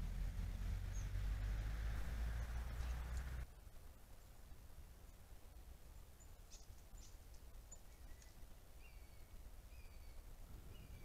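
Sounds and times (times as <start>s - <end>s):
faint bird chirps: 0.8s - 1.6s, 5.9s - 11.0s.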